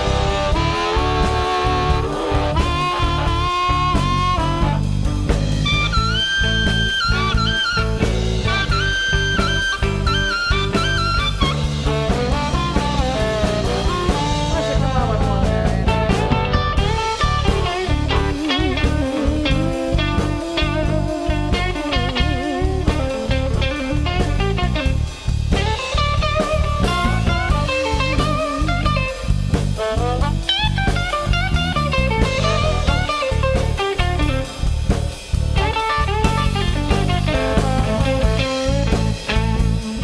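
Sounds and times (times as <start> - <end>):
bass and drum beat: 0.0 - 40.0
blues guitar solo: 0.0 - 40.0.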